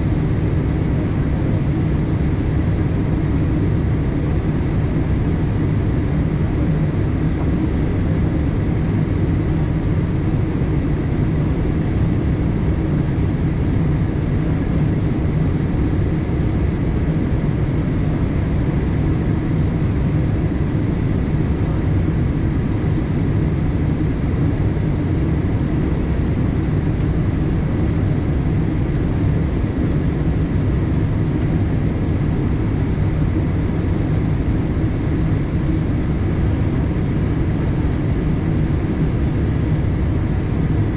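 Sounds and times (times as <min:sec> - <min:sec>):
airliner cabin engine rush: 0:00.0 - 0:40.9.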